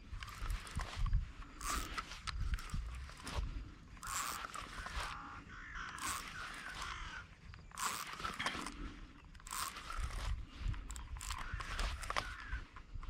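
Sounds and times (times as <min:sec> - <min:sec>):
bird harsh rasping calls: 0:04.0 - 0:08.4, 0:11.3 - 0:12.7.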